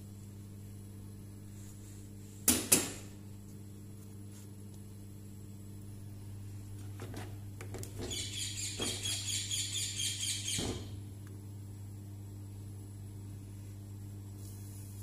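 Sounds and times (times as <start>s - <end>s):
steady low hum: 0.0s - 15.0s
bird chirping rapidly: 8.1s - 10.6s.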